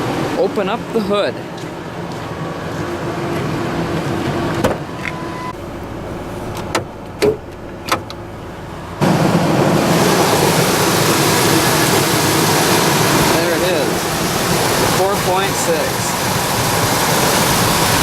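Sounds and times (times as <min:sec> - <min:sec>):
hood latch clicking: 0:06.5 - 0:08.2
loud steady rushing noise: 0:08.3 - 0:18.0.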